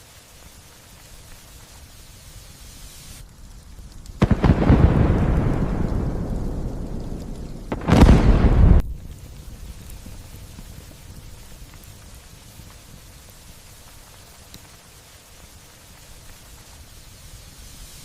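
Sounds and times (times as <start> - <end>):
light rain: 0.0 - 18.0
loud thunder: 4.2 - 9.0.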